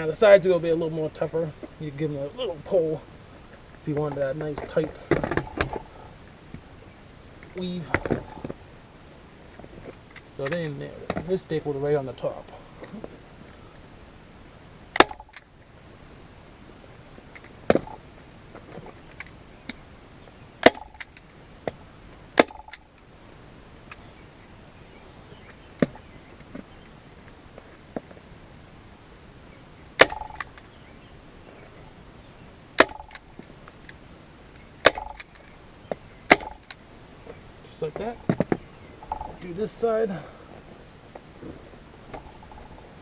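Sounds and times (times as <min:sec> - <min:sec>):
handling clicks: 0:09.9 - 0:11.2, 0:15.0 - 0:15.6, 0:20.6 - 0:21.4, 0:22.4 - 0:23.1, 0:30.0 - 0:30.7, 0:32.8 - 0:34.0, 0:34.8 - 0:35.5, 0:36.3 - 0:36.9.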